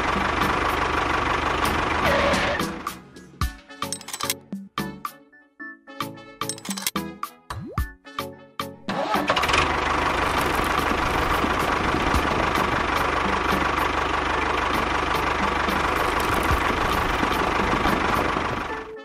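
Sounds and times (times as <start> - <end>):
toy tractor motor running: 9.3 - 12.8, 15.8 - 18.8.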